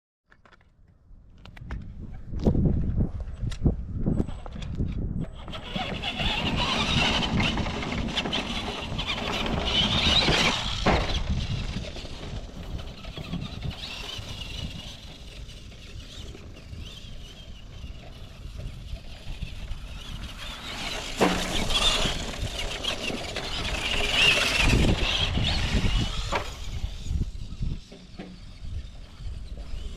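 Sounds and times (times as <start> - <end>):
toy truck electric motor whining: 5.2 - 29.9
tyres churning over forest floor: 5.6 - 29.9.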